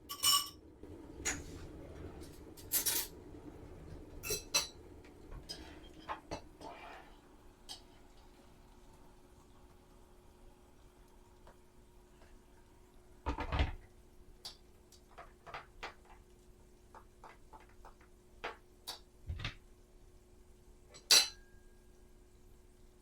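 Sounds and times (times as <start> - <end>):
dishes and cutlery clattering: 0.0 - 0.6, 2.6 - 3.2, 4.2 - 4.8, 5.4 - 7.0, 20.9 - 21.6.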